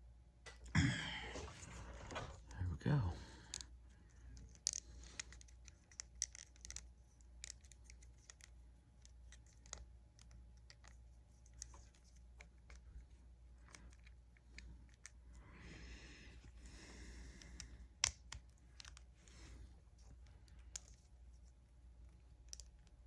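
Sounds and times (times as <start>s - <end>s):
small clicks and taps: 3.5s - 15.2s, 17.4s - 19.4s, 20.0s - 23.0s.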